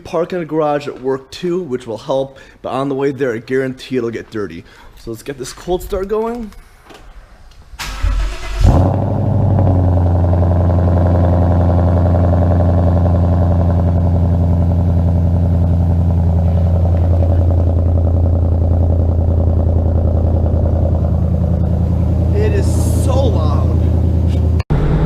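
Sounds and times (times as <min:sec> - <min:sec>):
car engine idling: 0:07.9 - 0:25.0.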